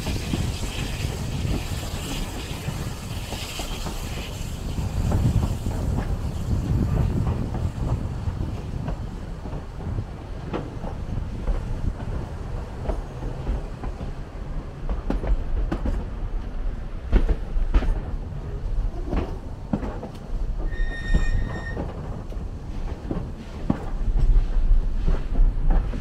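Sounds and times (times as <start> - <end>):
train wheels rumbling on rails: 0.0 - 26.0
high wheel squeal: 20.6 - 21.9.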